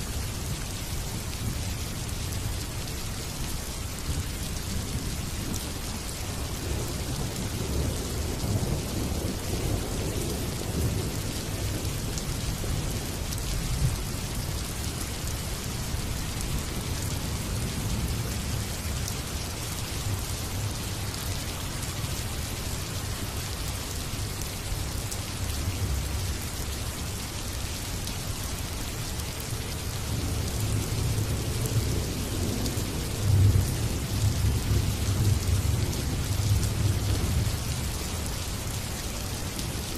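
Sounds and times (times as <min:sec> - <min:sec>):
steady rain falling: 0:00.0 - 0:39.9
rumble of thunder: 0:06.6 - 0:13.1, 0:30.0 - 0:37.9.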